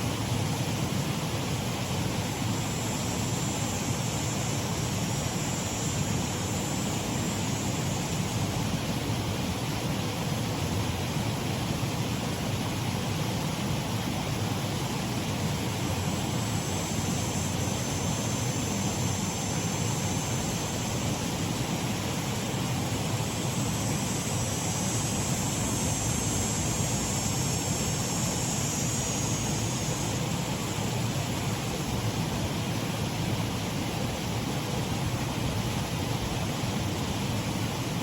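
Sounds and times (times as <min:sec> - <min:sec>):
stream waterfall splashing: 0:08.3 - 0:38.0.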